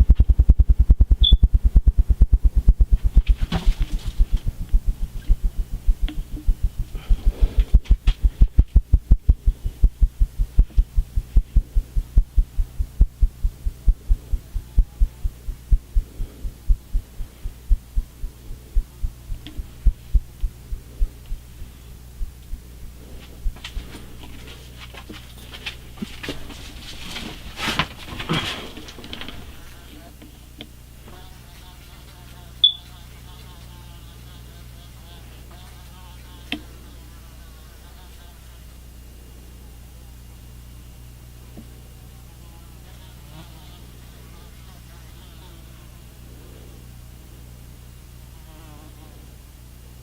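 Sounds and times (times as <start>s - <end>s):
ceiling fan thumping: 0.0s - 29.6s.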